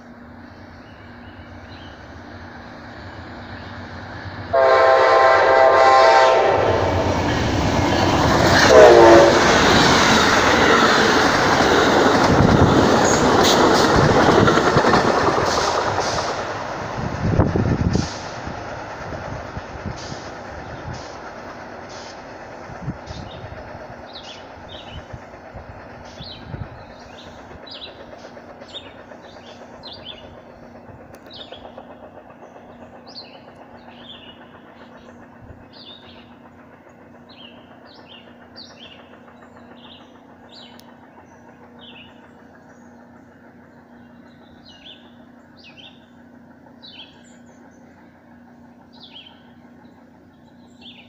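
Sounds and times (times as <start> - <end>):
distant train rumbling: 0.0 - 51.0
songbird chirping: 26.0 - 51.0.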